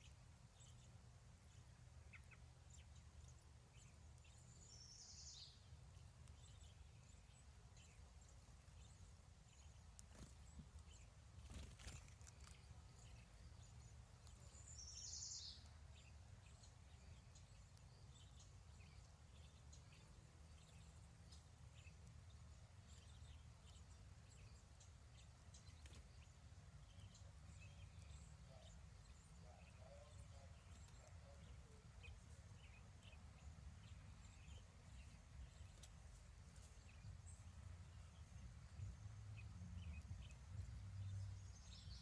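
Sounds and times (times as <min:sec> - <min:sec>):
faint bird chirps: 0:00.0 - 0:42.0.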